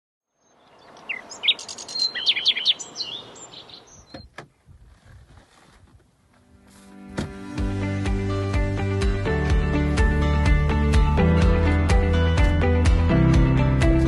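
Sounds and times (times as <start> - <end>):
faint outdoor noise: 0.2 - 7.0
small birds chirping: 0.3 - 4.4.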